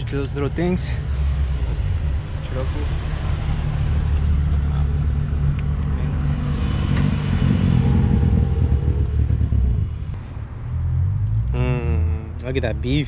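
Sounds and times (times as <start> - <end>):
cars rolling past: 0.0 - 11.6
pitched engine note: 11.5 - 12.4.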